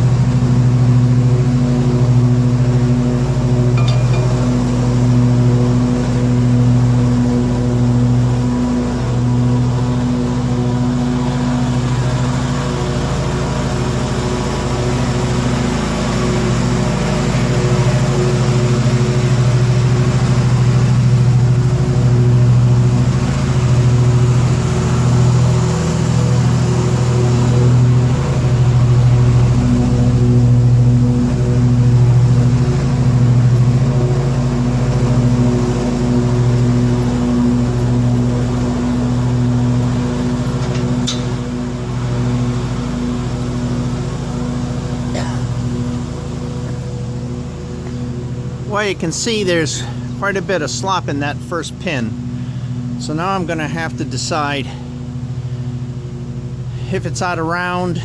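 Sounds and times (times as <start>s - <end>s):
backhoe engine running: 0.0s - 58.0s.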